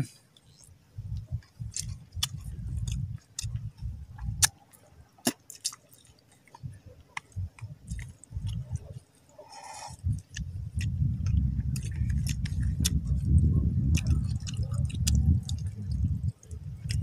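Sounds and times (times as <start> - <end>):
sharp mouth clicks: 0.4 - 4.6, 9.6 - 17.0
wet chewing and lip smacking: 0.4 - 17.0
short slurp: 9.4 - 10.2.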